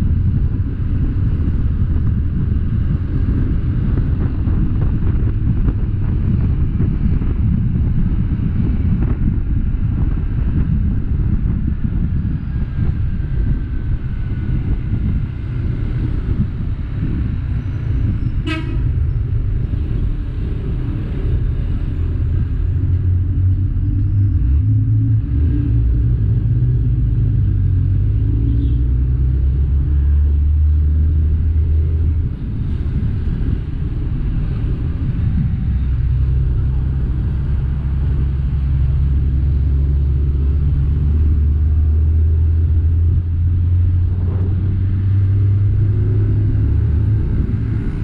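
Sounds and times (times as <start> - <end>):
low engine rumble: 0.0 - 48.0
wind noise on microphone: 0.0 - 48.0
horn toot: 18.4 - 19.0.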